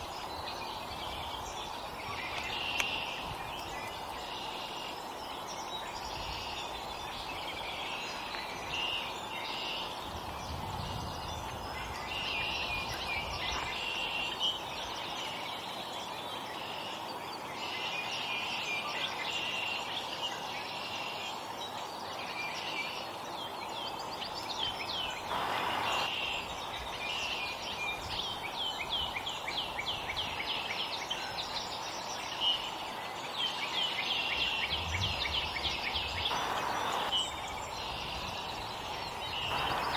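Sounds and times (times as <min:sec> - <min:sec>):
songbirds chirping and calling: 0:00.0 - 0:39.9
steady background noise: 0:24.5 - 0:27.7, 0:31.4 - 0:39.9.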